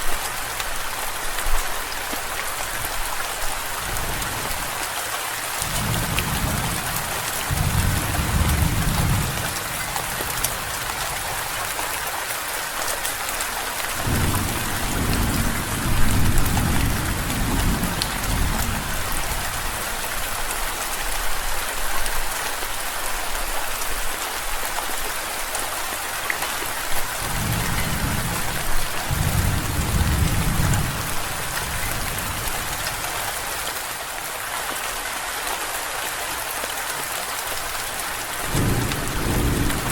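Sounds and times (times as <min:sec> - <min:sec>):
steady rain: 0:00.0 - 0:39.9
rolling thunder rumbles: 0:05.6 - 0:11.6, 0:14.0 - 0:19.6, 0:27.2 - 0:32.9, 0:38.5 - 0:39.9.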